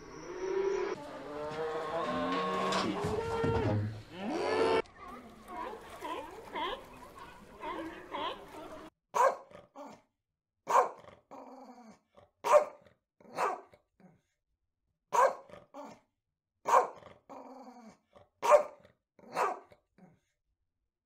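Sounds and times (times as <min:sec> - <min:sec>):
dog barking: 0:09.1 - 0:10.0, 0:10.7 - 0:11.1, 0:12.4 - 0:13.8, 0:15.1 - 0:16.0, 0:16.6 - 0:17.0, 0:18.4 - 0:19.8.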